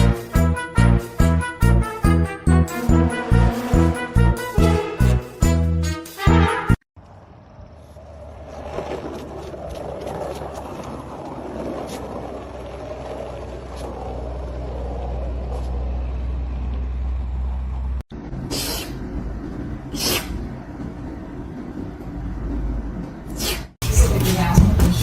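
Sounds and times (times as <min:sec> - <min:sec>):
low engine rumble: 0:07.0 - 0:25.0.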